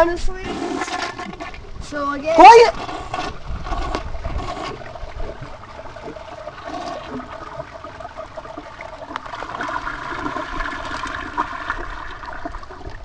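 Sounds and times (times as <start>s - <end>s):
toilet flushing: 5.6s - 12.7s.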